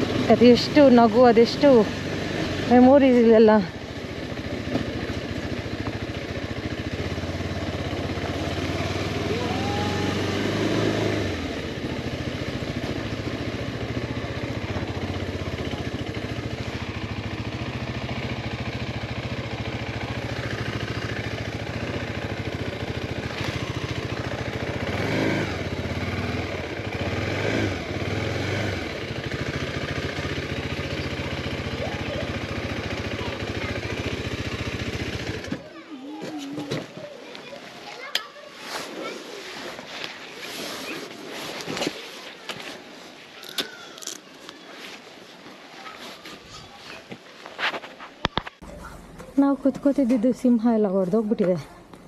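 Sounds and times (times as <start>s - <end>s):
motorcycle engine running: 0.0s - 35.8s, 48.4s - 52.0s.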